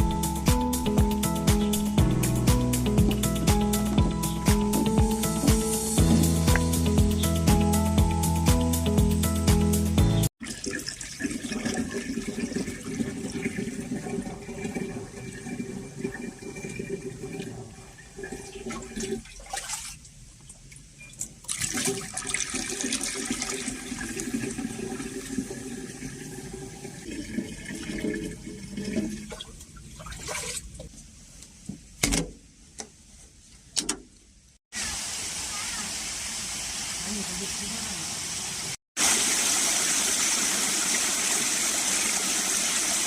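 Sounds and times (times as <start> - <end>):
water pouring into a container: 10.4 - 19.9, 21.5 - 30.6, 39.0 - 43.0.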